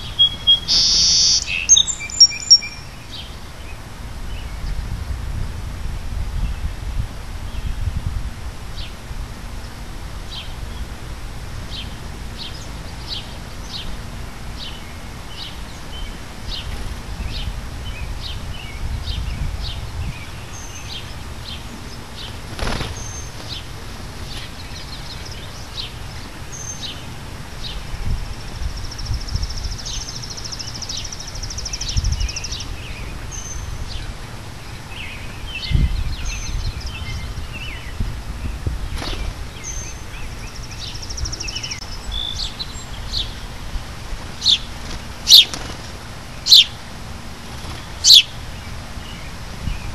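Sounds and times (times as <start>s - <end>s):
small birds chip notes: 0.0s - 3.3s, 44.3s - 46.8s, 47.6s - 48.7s
bird trill: 0.0s - 3.4s, 44.4s - 45.7s, 46.4s - 46.8s, 47.8s - 48.4s
bird whistles: 0.1s - 2.9s, 45.3s - 45.5s, 46.5s - 46.7s, 48.0s - 48.3s.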